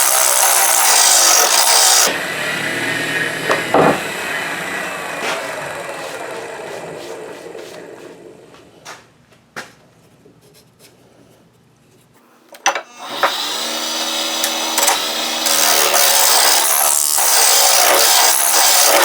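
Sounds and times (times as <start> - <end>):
lathe motor whine: 0.0 - 8.3, 12.9 - 19.0
chisel scraping spinning wood: 0.0 - 8.4.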